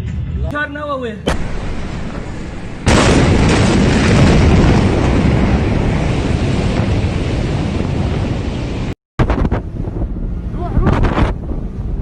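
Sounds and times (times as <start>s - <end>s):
explosion boom: 1.3s - 10.2s
wind buffeting microphone: 1.3s - 12.0s
rumbling roar: 1.4s - 12.0s.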